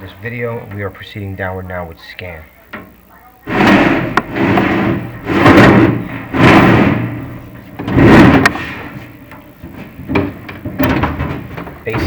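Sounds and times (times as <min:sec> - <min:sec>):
camera scraping inside metal flue: 0:03.5 - 0:11.9
small knocks: 0:03.6 - 0:12.0.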